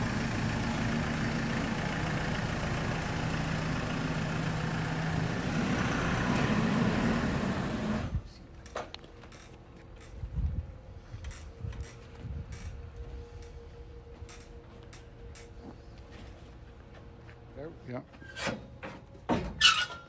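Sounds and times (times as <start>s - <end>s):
truck diesel engine running: 0.0s - 8.2s.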